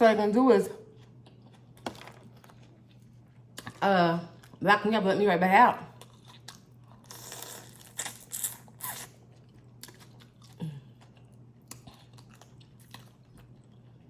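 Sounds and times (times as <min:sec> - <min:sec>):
chewing: 0:06.0 - 0:14.0.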